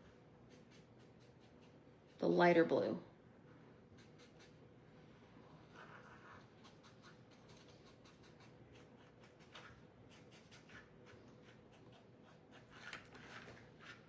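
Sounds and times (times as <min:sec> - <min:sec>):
marker scratching and tapping: 0:03.9 - 0:04.6, 0:05.7 - 0:14.0.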